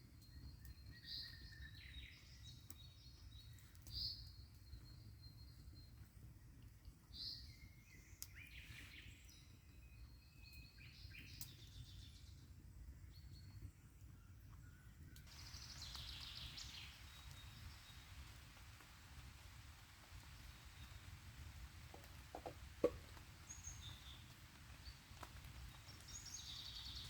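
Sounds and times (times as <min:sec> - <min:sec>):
birds singing: 0:13.1 - 0:27.0.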